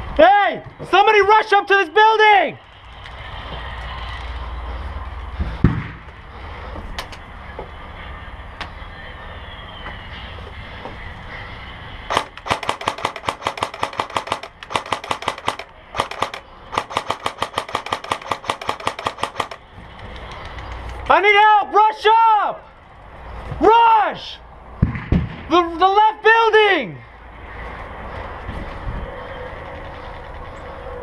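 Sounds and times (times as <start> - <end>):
low rumbling noise: 2.4 - 21.1, 24.3 - 25.9
airsoft guns firing: 12.1 - 19.6.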